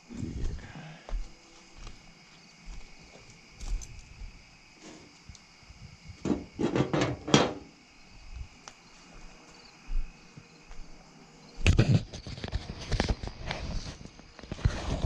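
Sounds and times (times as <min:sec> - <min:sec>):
rustling and scuffing: 0:00.0 - 0:05.3, 0:08.2 - 0:15.0
crickets chirping: 0:00.0 - 0:15.0.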